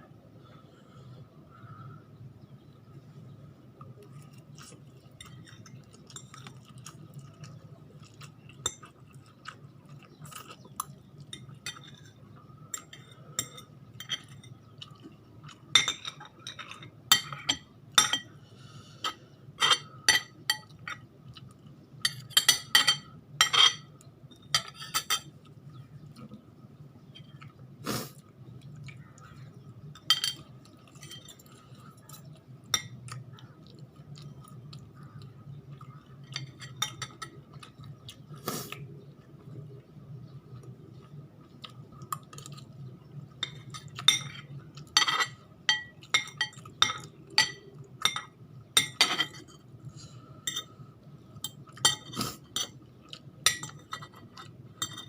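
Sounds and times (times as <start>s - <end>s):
low steady hum: 0.0s - 55.0s
utensils clinking against a dish: 8.0s - 18.3s, 19.0s - 21.1s, 22.0s - 25.4s, 30.0s - 33.2s, 36.0s - 37.9s, 43.4s - 49.7s, 50.4s - 50.8s, 51.4s - 55.0s.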